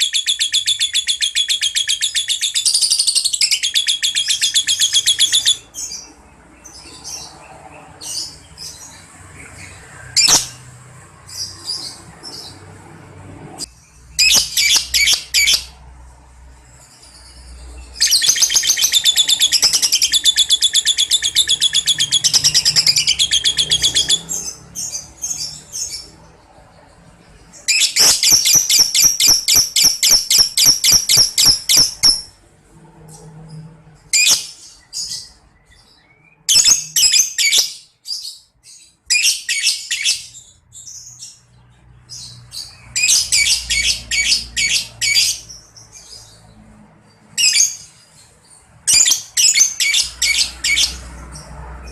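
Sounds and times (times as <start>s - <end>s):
lovebird shrill chattering trills: 14.2s - 15.7s, 27.7s - 32.3s.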